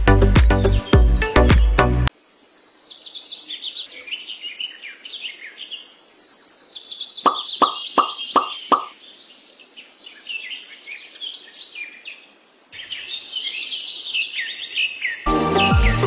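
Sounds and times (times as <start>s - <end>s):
music: 0.0s - 2.1s, 15.3s - 16.0s
birds chirping: 0.5s - 15.9s.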